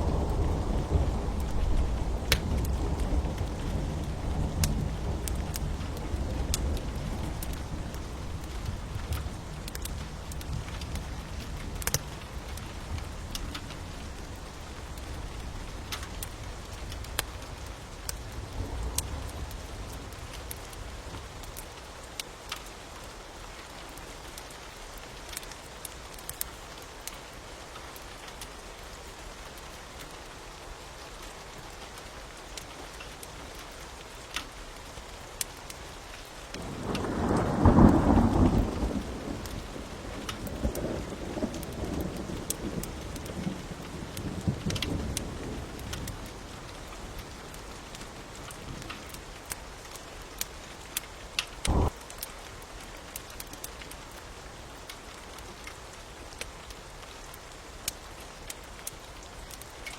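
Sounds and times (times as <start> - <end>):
thunder rumbling: 0.0 - 17.7, 36.6 - 48.9, 51.6 - 52.1
rain hiss: 0.0 - 59.9
wood fire crackling: 0.0 - 59.9.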